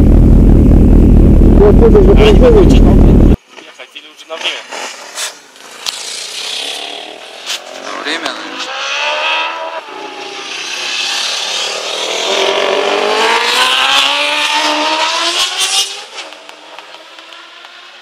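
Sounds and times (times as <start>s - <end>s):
racing motorcycle passing by: 5.6s - 18.0s.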